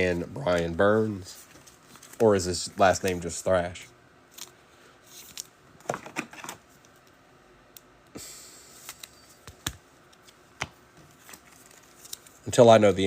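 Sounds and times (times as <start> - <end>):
cards sliding rustle: 0.1 - 3.4, 4.3 - 7.0, 8.7 - 13.0
cards clicking and tapping: 8.8 - 12.3.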